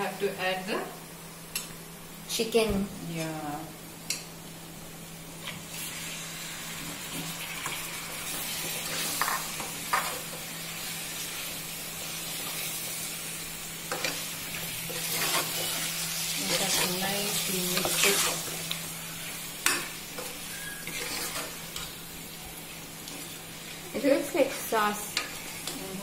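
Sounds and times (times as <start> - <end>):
chicken sizzling in a pan: 3.9 - 26.0
spoon scraping a pan: 7.6 - 10.4, 13.9 - 17.0, 17.6 - 18.7, 19.6 - 22.0.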